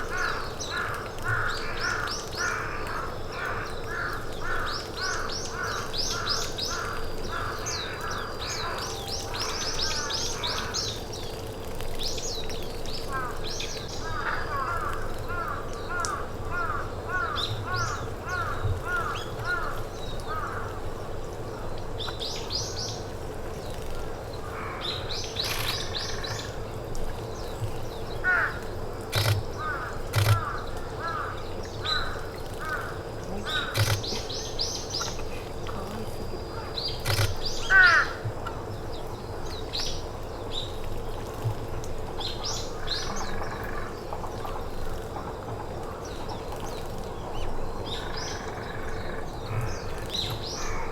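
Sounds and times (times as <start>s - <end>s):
birds calling: 13.1s - 21.0s, 24.0s - 40.7s
sharp clicks: 25.3s - 26.4s, 29.1s - 30.6s, 33.6s - 35.2s, 37.0s - 37.6s.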